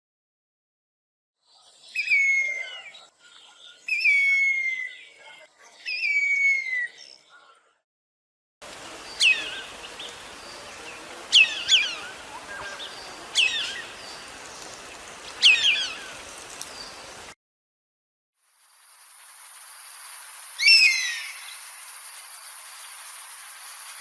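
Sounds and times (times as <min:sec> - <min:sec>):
background hiss: 0:08.6 - 0:17.4
bird of prey calling: 0:09.2 - 0:17.2.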